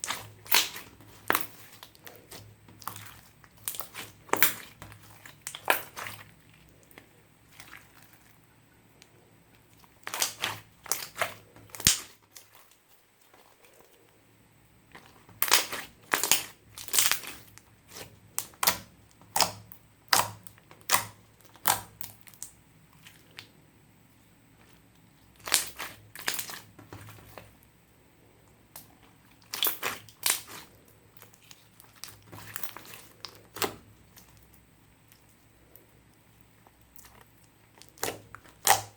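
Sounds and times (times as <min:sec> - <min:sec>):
slime clicking and popping: 0:15.4 - 0:17.4, 0:18.4 - 0:22.5, 0:25.4 - 0:26.6, 0:28.7 - 0:30.6, 0:37.0 - 0:38.9.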